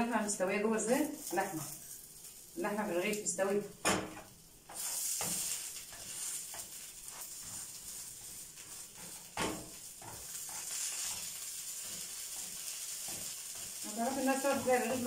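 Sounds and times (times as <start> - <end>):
bread sizzling in a frying pan: 0.0 - 15.0
metal spatula moving in pan: 3.9 - 15.0.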